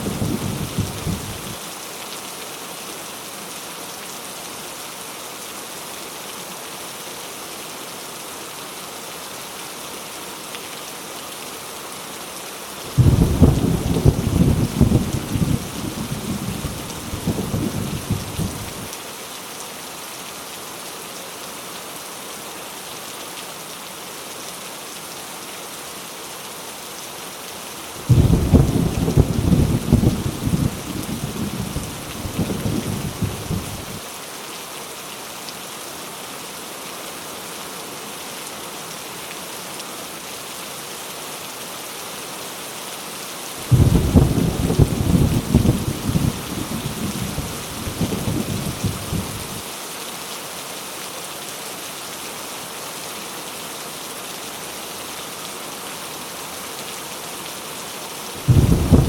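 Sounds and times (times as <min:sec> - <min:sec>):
heavy rain falling: 0:00.0 - 0:59.0
rolling thunder: 0:13.0 - 0:18.9, 0:28.1 - 0:34.0, 0:43.7 - 0:49.6, 0:58.4 - 0:59.0.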